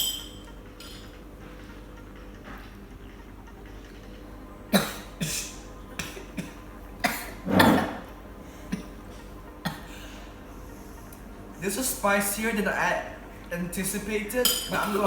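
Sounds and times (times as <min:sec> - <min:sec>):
person coughing: 0:04.7 - 0:08.0, 0:09.6 - 0:10.0.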